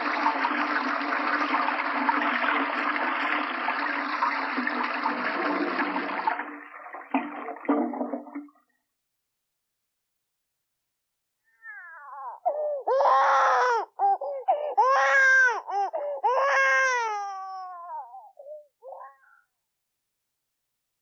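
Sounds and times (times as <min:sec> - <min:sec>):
cat meowing: 0:11.5 - 0:12.4.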